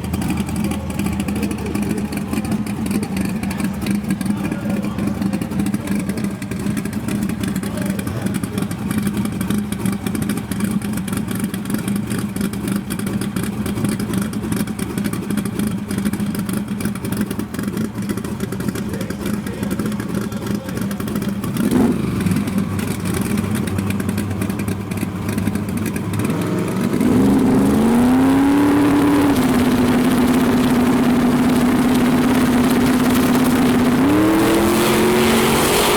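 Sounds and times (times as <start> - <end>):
race car engine idling and revving: 0.0 - 35.9.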